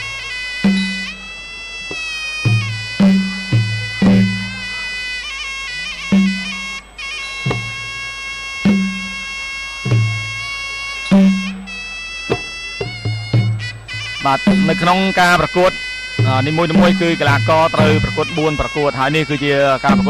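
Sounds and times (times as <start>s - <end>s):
shrill reed pipe melody: 0.0s - 20.0s
low drum strikes: 0.7s - 1.3s, 1.9s - 4.7s, 6.1s - 6.8s, 7.4s - 10.4s, 11.1s - 15.2s, 16.2s - 18.7s.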